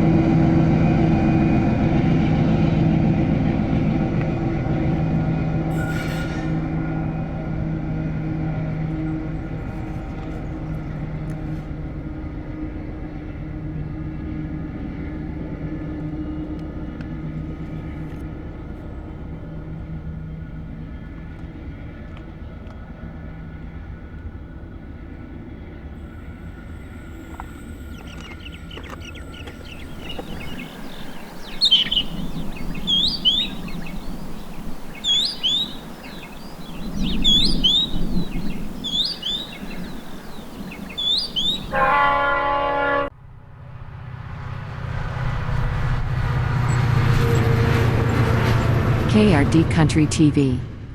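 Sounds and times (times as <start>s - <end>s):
diesel locomotive engine droning: 0.0s - 50.9s
birds chirping: 8.6s - 11.6s, 26.1s - 42.6s.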